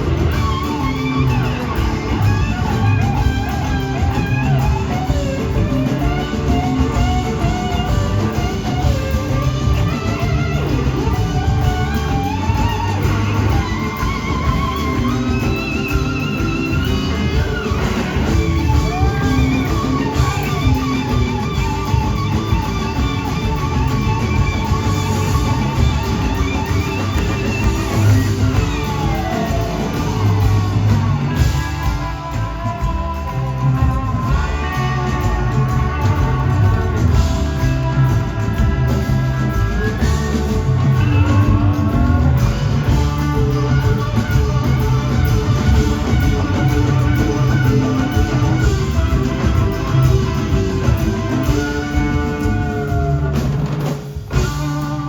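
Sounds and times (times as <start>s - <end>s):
electric guitar soloing: 0.0s - 55.0s
rock band playing: 0.0s - 55.0s.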